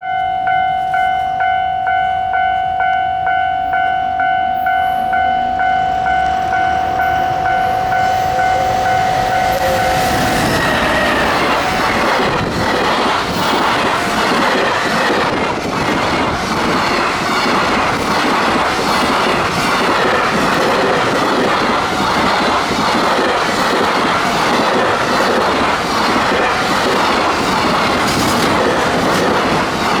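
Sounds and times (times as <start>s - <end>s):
level crossing warning bell: 0.0s - 16.4s
electric locomotive passing: 0.0s - 30.0s
train wheels clattering over rail joints: 9.4s - 30.0s.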